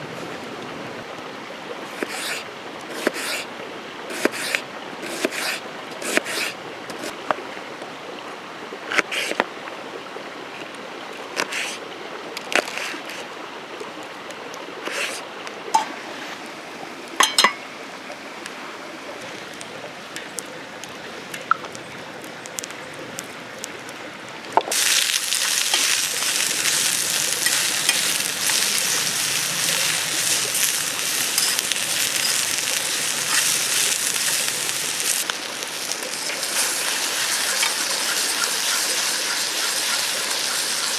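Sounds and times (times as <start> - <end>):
rain falling: 15.0 - 40.9
cookware clinking: 17.2 - 17.7
heavy rain hissing: 24.7 - 40.9.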